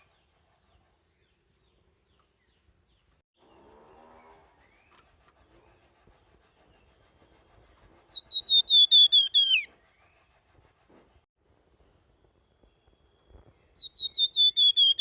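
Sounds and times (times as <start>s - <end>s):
songbird whistling fluting phrase: 8.1s - 9.7s, 13.8s - 15.0s.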